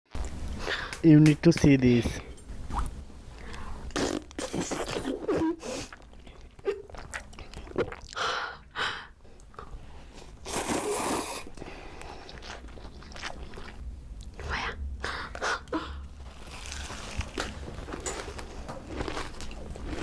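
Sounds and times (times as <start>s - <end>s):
crunchy bites and chewing: 16.2s - 20.0s.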